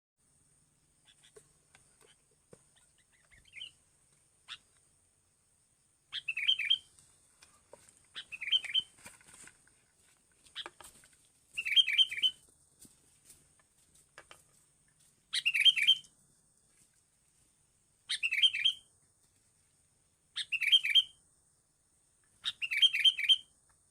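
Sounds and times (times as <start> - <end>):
songbird chirping: 0.2 - 23.9.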